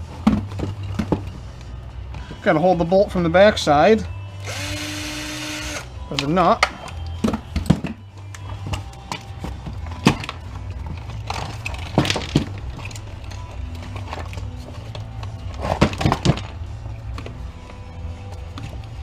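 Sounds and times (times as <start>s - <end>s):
background music: 0.0s - 19.0s
clanks of tools and metal parts: 6.0s - 18.9s.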